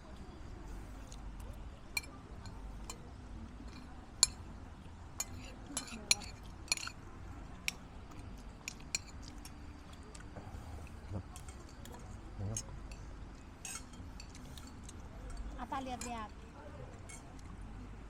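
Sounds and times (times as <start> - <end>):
spoons clinking on plates: 3.7 - 4.4, 5.2 - 7.0, 8.6 - 9.6, 12.6 - 16.3.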